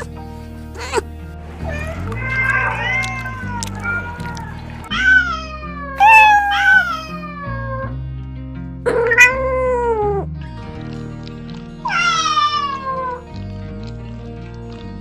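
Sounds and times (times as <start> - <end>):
music with sustained low notes: 0.0 - 15.0
cats meowing: 1.6 - 8.0, 8.9 - 10.3, 11.8 - 13.4.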